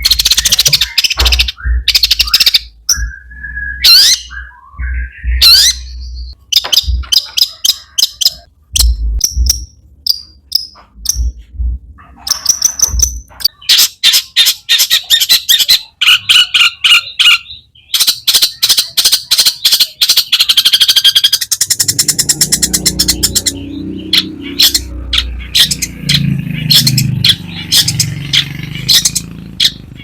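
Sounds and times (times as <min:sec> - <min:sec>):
shrike singing harsh chattering notes: 0:12.4 - 0:30.0.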